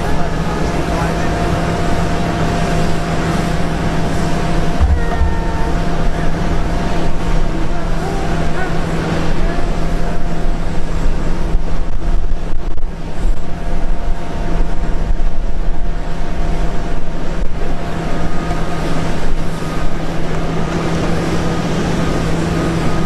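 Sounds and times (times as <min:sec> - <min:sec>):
engine whining tones: 0:00.0 - 0:11.6
jet engines rumbling: 0:00.0 - 0:23.0.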